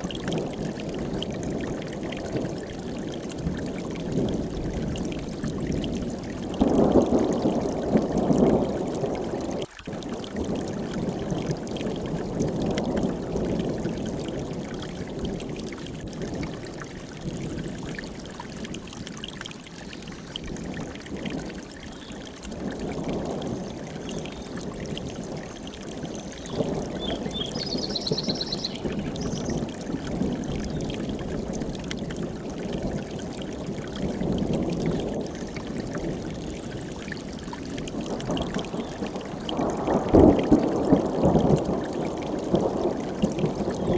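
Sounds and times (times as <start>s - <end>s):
mountain stream rushing: 0.0s - 4.3s, 5.0s - 43.9s
high bird call: 26.2s - 29.6s.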